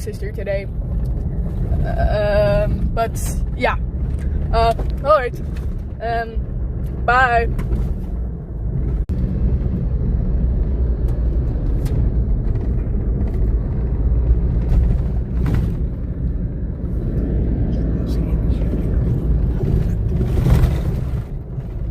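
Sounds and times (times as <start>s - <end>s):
car road noise rumble: 0.0s - 21.9s
faint rattles and knocks: 0.7s - 9.1s, 11.1s - 16.4s.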